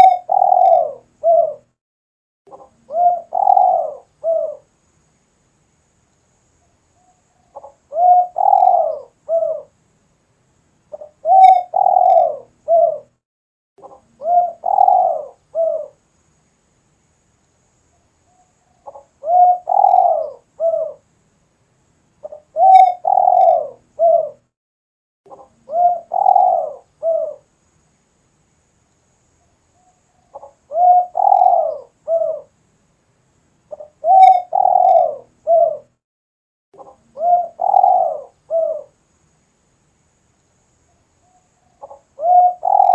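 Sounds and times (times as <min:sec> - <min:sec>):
dove cooing: 0:00.0 - 0:01.7, 0:02.5 - 0:04.7, 0:07.5 - 0:09.7, 0:11.0 - 0:13.1, 0:13.8 - 0:16.0, 0:18.8 - 0:21.0, 0:22.2 - 0:24.4, 0:25.3 - 0:27.4, 0:30.3 - 0:32.5, 0:33.7 - 0:35.9, 0:36.8 - 0:38.9, 0:41.8 - 0:42.9.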